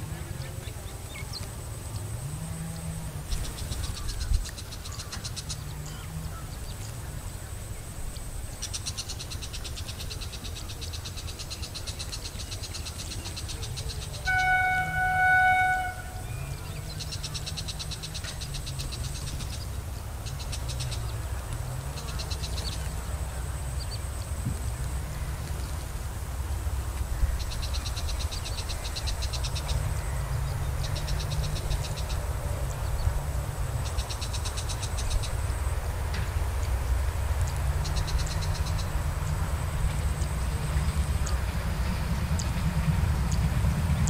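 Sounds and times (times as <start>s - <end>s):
low railway rumble: 0.0s - 44.0s
train horn blast: 14.1s - 16.8s.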